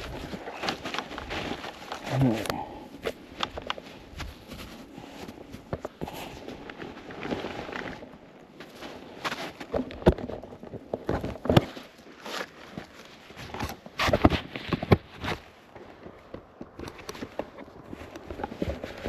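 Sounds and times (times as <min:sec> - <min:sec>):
footsteps crunching through snow: 0:00.0 - 0:09.8.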